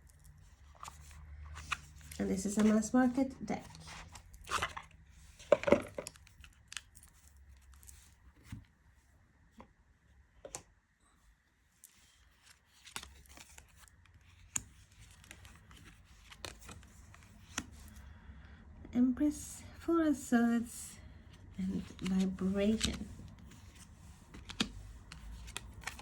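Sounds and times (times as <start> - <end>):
cards rustling and sliding: 0.4 - 8.6, 11.8 - 18.0, 21.3 - 26.0.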